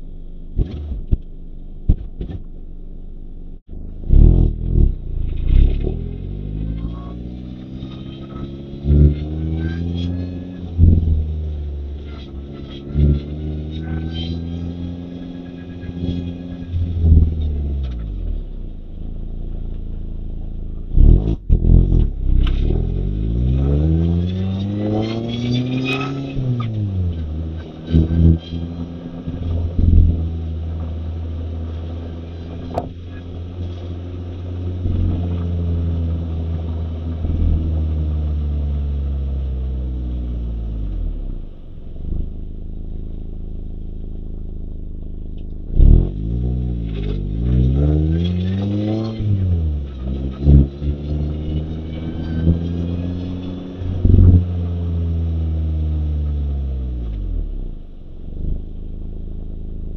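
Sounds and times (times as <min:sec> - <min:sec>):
car engine pulling with gear changes: 0:00.0 - 0:59.9.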